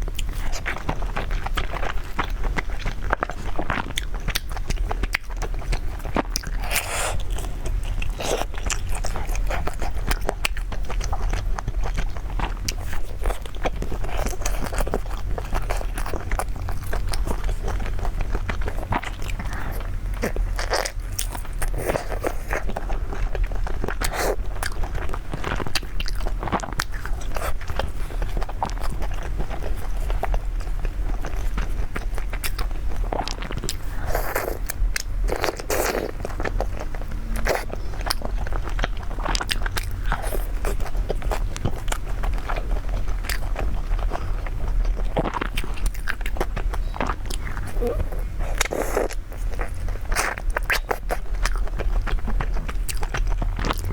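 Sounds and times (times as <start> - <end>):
person chewing crunchy food: 0.0 - 53.9
low hum: 35.2 - 40.2.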